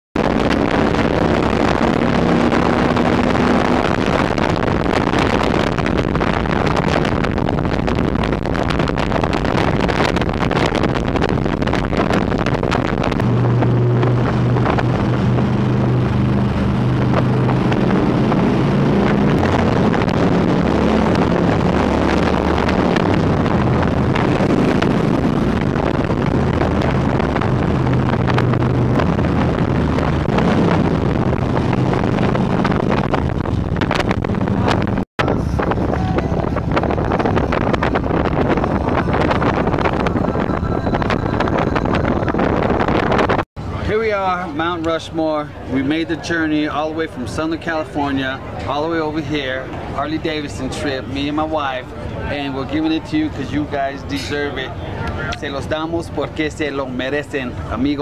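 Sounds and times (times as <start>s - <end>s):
motorcycle engine running: 0.2s - 43.4s
wind buffeting microphone: 0.2s - 58.0s.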